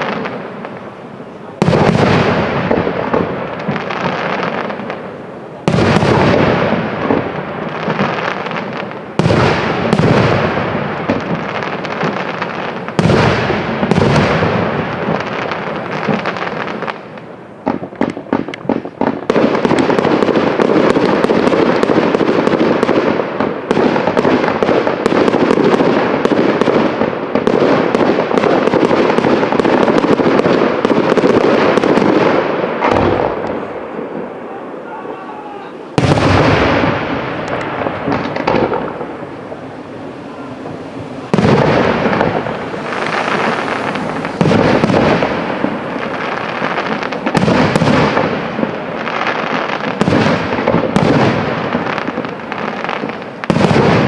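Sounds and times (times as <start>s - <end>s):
fireworks crackling: 0.0s - 54.0s
fireworks shells bursting: 36.0s - 54.0s.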